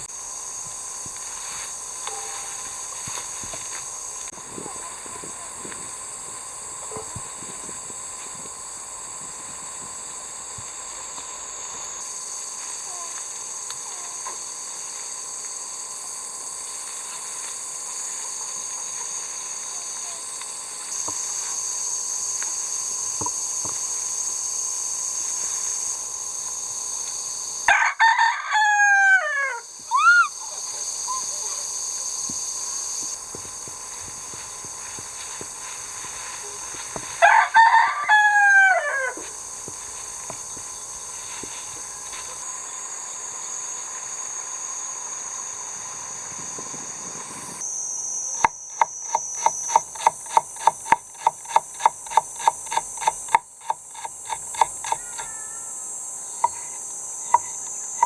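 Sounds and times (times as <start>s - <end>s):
rooster crowing: 27.7s - 31.3s, 36.6s - 39.4s
high-pitched background drone: 28.5s - 43.1s.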